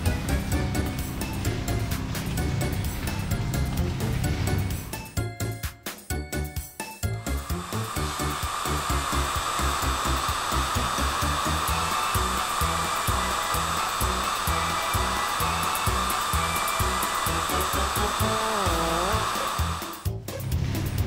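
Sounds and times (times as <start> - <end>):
spinning brush whirring hiss: 7.2 - 20.1.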